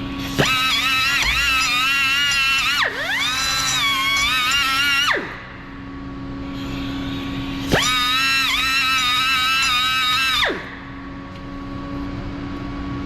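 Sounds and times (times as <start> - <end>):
rotary power tool whining: 0.0 - 5.6, 6.5 - 10.9.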